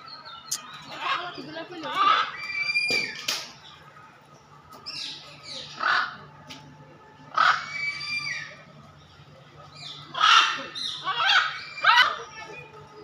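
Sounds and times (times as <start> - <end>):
harsh bird calls: 9.7 - 12.8.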